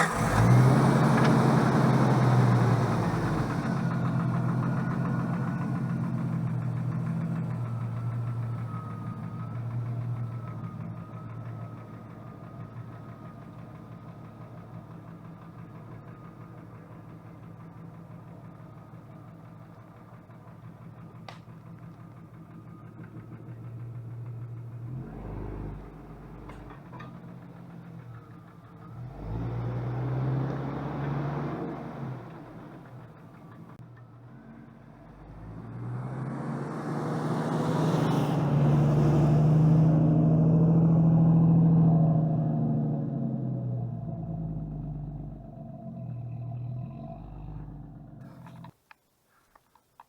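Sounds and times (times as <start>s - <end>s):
car engine running: 42.7s - 48.8s.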